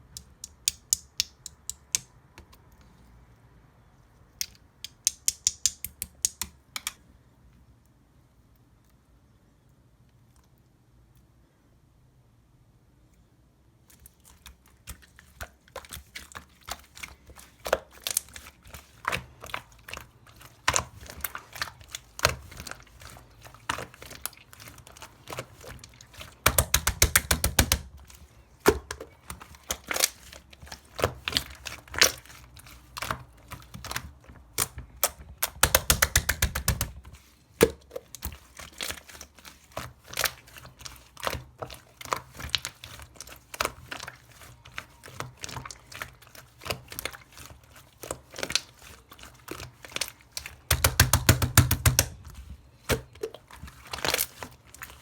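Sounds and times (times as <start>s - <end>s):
slime squeezed with sticky pops: 19.0s - 28.0s, 28.6s - 39.1s, 48.0s - 55.0s.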